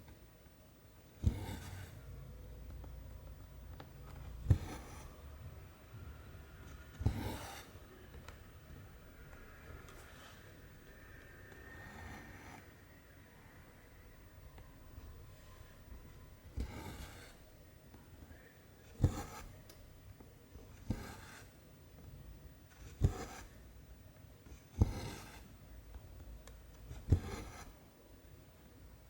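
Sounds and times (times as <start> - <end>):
thread rasping through fabric: 1.2 - 2.0, 24.7 - 25.5, 26.9 - 27.7.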